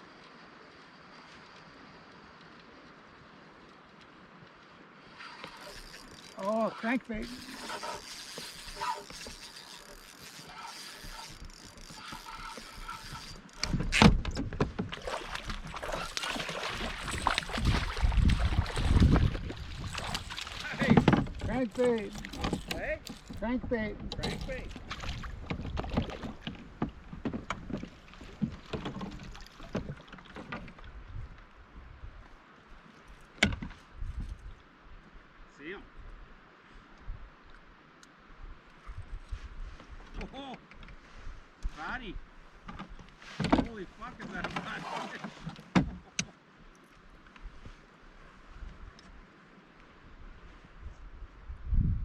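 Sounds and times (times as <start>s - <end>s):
water splashing against kayak: 0.1s - 31.0s, 42.5s - 47.9s
fishing reel cranking: 5.2s - 14.0s, 19.8s - 23.4s.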